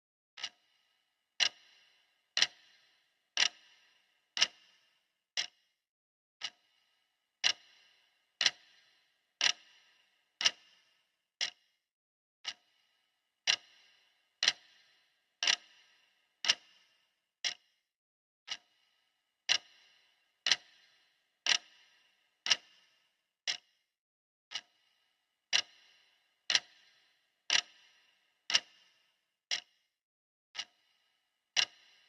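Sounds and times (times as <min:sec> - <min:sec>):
clock ticking: 0:00.4 - 0:00.8, 0:01.4 - 0:05.6, 0:06.4 - 0:06.8, 0:07.4 - 0:11.6, 0:12.4 - 0:12.8, 0:13.4 - 0:17.6, 0:18.5 - 0:18.8, 0:19.5 - 0:22.9, 0:23.5 - 0:23.7, 0:24.5 - 0:24.9, 0:25.5 - 0:28.9, 0:29.5 - 0:29.8, 0:30.6 - 0:31.0, 0:31.6 - 0:32.0.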